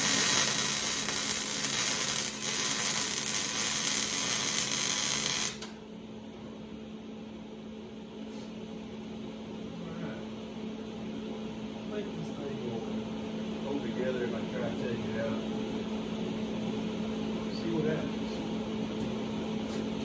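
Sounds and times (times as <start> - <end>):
welder crackling hiss: 0.0 - 5.7.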